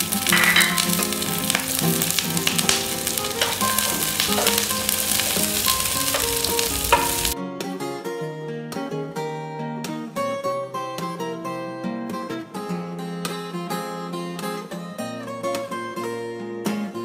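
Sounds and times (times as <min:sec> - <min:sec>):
onions sizzling in oil: 0:00.0 - 0:07.4
guitar tune: 0:00.0 - 0:17.0
spatula clicking on a pan: 0:00.1 - 0:07.4
spatula scraping a pan: 0:02.7 - 0:07.4.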